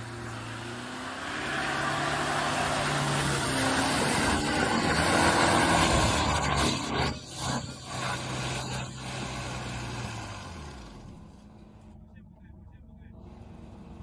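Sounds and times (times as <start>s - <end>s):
engine working hard under load: 0.0s - 14.0s.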